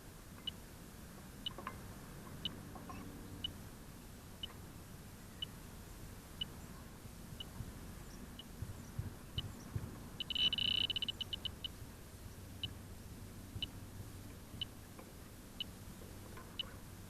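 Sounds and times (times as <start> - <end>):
leak detector beeping: 10.2 - 11.8.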